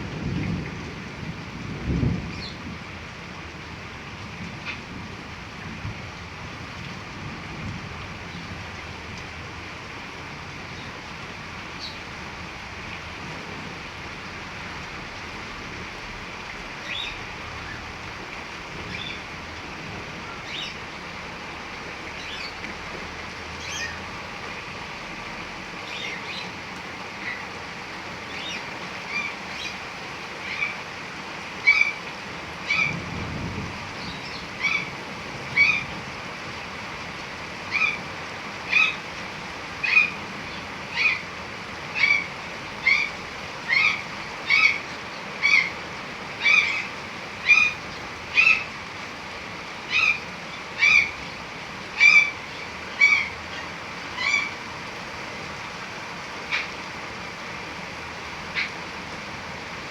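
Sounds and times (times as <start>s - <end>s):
heavy rain hissing: 0.0s - 59.9s
bird calling: 31.6s - 32.0s, 35.5s - 36.0s, 38.7s - 39.1s, 39.8s - 41.3s, 41.9s - 45.8s, 46.4s - 48.8s, 49.8s - 54.6s, 56.4s - 56.9s, 58.5s - 58.8s.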